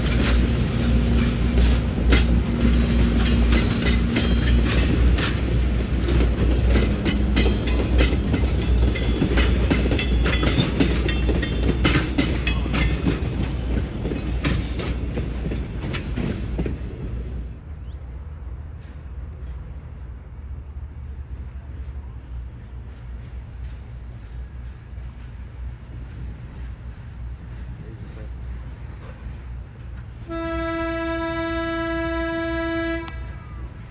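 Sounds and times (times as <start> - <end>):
wheels clattering over rails: 0.0 - 17.2
train rumbling: 0.0 - 33.9.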